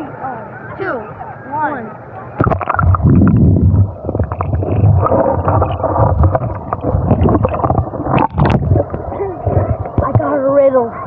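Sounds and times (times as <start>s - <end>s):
knocks and splashes: 2.4s - 10.3s
underwater rumbling and gurgling: 2.4s - 11.0s.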